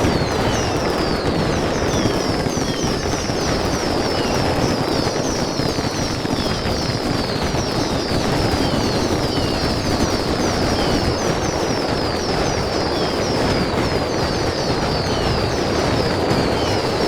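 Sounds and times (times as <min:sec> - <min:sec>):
fireworks barrage: 0:00.0 - 0:17.0.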